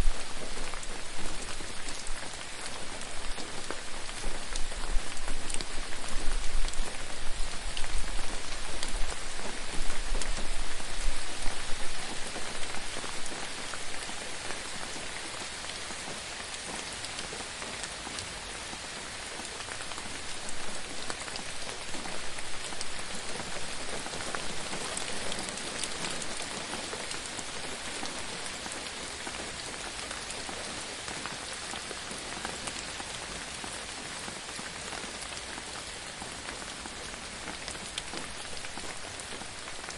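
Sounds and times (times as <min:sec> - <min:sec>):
gentle rain with dripping drops: 0:00.0 - 0:39.9.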